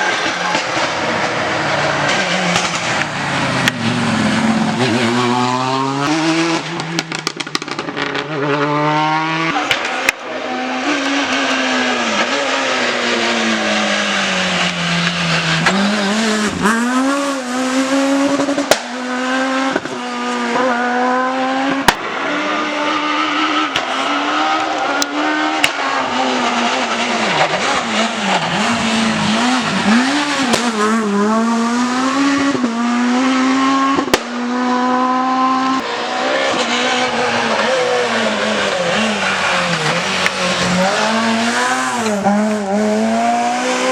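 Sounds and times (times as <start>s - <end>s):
rally car engine revving: 0.0s - 43.9s
sharp exhaust pops: 6.5s - 8.3s.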